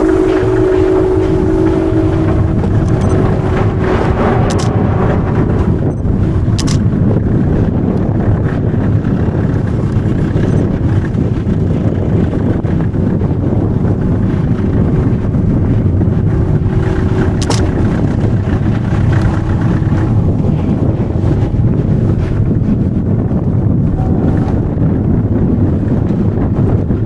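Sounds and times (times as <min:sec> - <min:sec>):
steam train rumbling: 0:00.0 - 0:27.0
sharp click: 0:06.6 - 0:06.8, 0:17.4 - 0:17.6.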